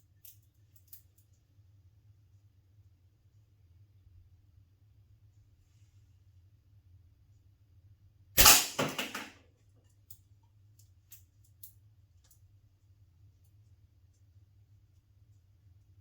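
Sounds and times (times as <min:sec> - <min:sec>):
sharp crack of ammo hitting target: 0:08.4 - 0:09.3.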